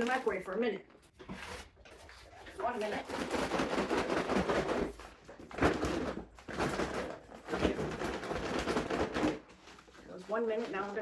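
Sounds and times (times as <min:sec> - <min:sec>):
paper bag of popcorn crinkling: 0:00.0 - 0:00.6.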